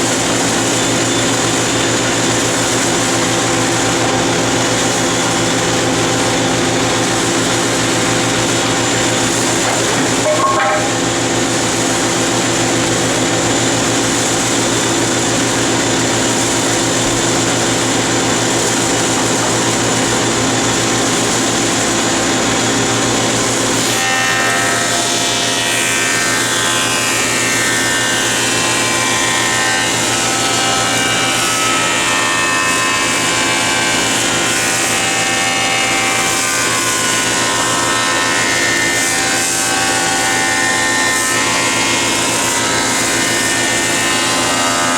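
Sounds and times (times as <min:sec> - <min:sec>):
saw cutting wood whining: 0:00.0 - 0:12.8
dust collector running: 0:00.0 - 0:44.9
woodworking machinery running: 0:00.0 - 0:44.9.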